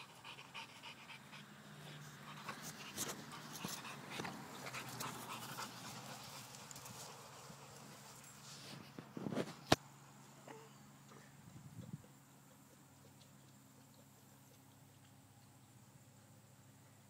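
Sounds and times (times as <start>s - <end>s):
dog panting: 0.0s - 8.4s.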